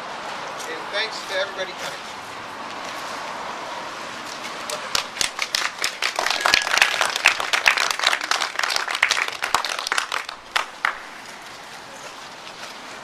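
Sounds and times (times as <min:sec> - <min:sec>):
people applauding: 0:04.6 - 0:11.2.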